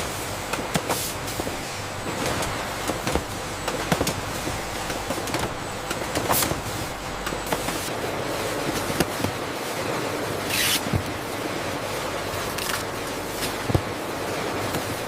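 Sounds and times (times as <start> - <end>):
factory machinery running: 0.0 - 15.0.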